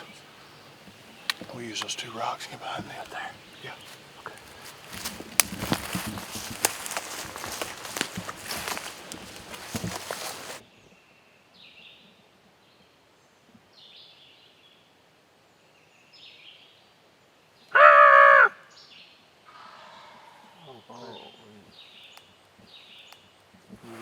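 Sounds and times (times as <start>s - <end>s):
faint songbird chirps: 0.0s - 17.9s, 18.6s - 24.0s
footsteps rustling through dry leaves: 2.6s - 10.6s
loud pitched bird call: 17.7s - 18.8s.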